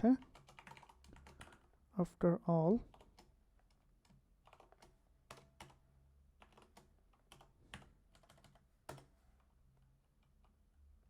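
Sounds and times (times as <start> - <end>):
typing on keyboard: 0.0 - 1.8, 2.9 - 5.8, 6.4 - 9.1.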